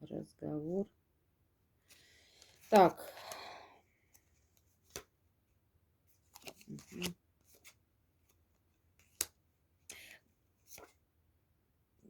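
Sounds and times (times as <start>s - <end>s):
cards snapping and clicking: 4.9s - 5.1s, 6.3s - 7.2s, 9.0s - 9.4s.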